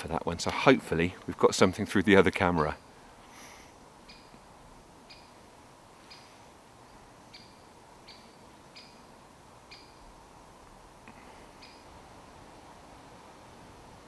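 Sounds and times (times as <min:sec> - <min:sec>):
woodland hiss: 0:00.0 - 0:14.0
small bird sharp call: 0:06.0 - 0:06.5, 0:07.3 - 0:09.1, 0:09.7 - 0:10.1, 0:11.0 - 0:12.0.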